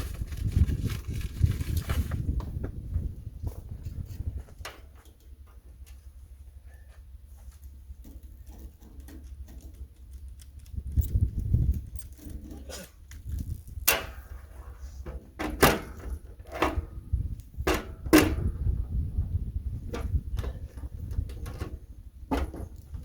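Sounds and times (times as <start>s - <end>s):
steady low rumble: 0.0s - 15.1s, 16.1s - 23.0s
knocks and clunks: 19.9s - 23.0s.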